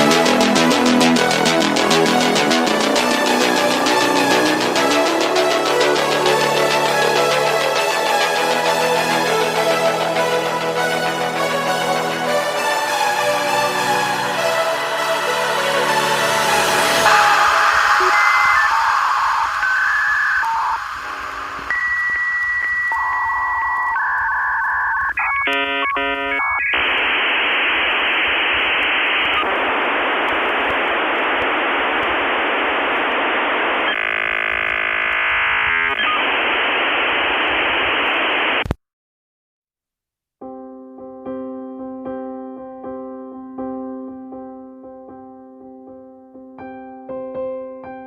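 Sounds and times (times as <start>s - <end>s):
piano music: 0.0s - 19.1s, 40.4s - 48.0s
modem line hiss: 16.5s - 38.8s
dial-up modem tones: 17.1s - 38.7s.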